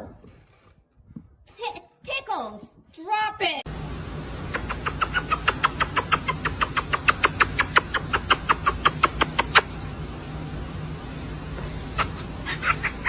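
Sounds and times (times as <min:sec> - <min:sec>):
low motor hum: 0:03.7 - 0:13.0
fast short chirps: 0:04.4 - 0:09.8.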